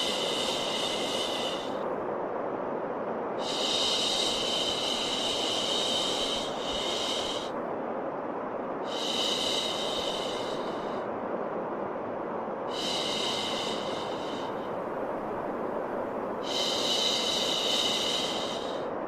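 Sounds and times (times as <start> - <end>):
steady white noise: 0.0 - 19.0.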